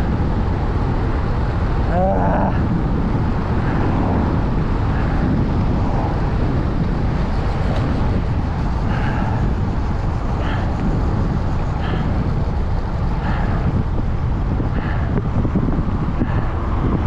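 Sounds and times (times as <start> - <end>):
road rumble: 0.0 - 17.0
wind noise on microphone: 0.0 - 17.0.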